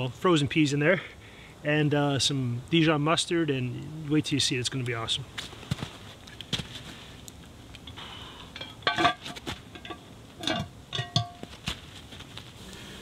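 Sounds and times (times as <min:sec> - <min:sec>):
metal lid clanking on pot: 0:08.6 - 0:11.5.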